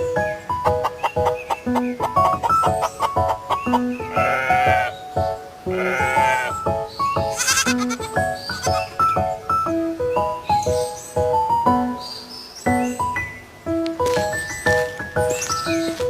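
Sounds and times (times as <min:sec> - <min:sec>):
bouncy plucked music: 0:00.0 - 0:12.0
animal bleats: 0:04.0 - 0:04.9, 0:05.7 - 0:06.6, 0:07.3 - 0:08.9.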